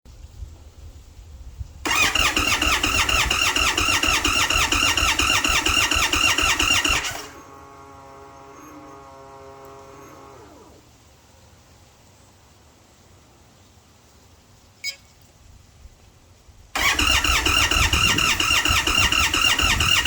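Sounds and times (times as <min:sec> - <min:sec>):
faint steady hum: 0:00.2 - 0:20.0
motorcycle engine cranking: 0:01.9 - 0:07.6, 0:16.8 - 0:20.0.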